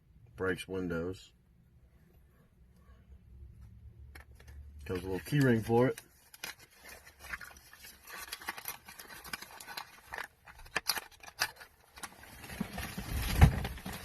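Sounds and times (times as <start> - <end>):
packaging clicks and rustles: 4.2 - 14.0.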